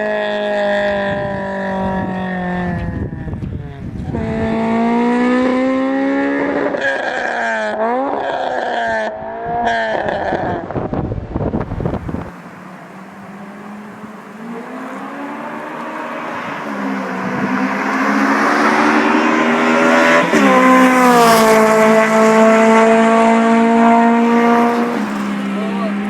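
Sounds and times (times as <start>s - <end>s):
car engine running under load: 10.7s - 26.0s.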